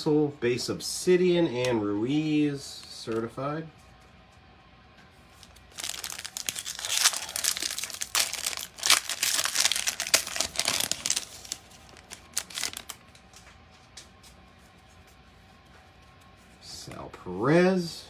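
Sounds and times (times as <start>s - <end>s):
foil wrapper crinkling and tearing: 5.4s - 13.2s.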